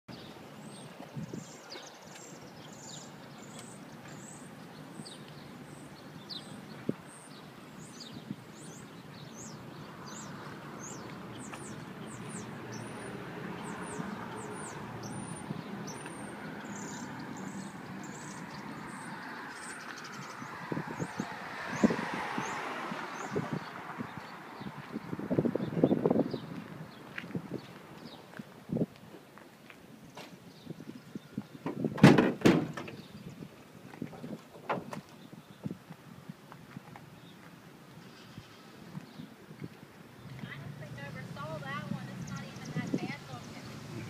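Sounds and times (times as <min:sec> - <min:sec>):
outdoor background noise: 0:00.0 - 0:44.0
bird chirping: 0:00.1 - 0:28.3.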